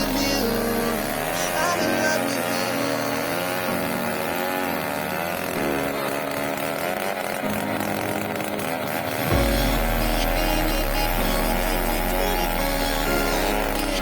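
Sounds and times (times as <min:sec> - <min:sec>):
music with heavy bass: 0:00.0 - 0:01.8, 0:09.3 - 0:14.0
engine-driven saw cutting wood: 0:00.0 - 0:14.0.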